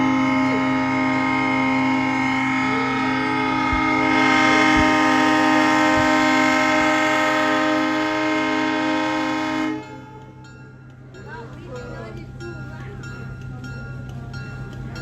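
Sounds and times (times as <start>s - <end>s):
locomotive air horn chord: 0.0s - 10.6s.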